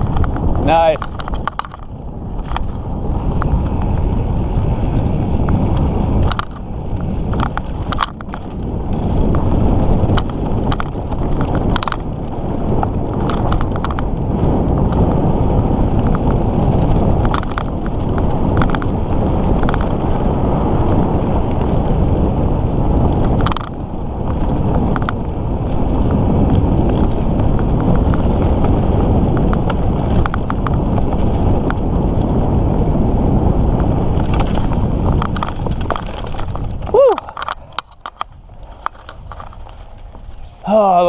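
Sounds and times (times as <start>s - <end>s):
bike clicks and rattles: 0.0s - 41.0s
bike tyres rumbling on dirt: 0.0s - 41.0s
wind buffeting microphone: 0.0s - 41.0s.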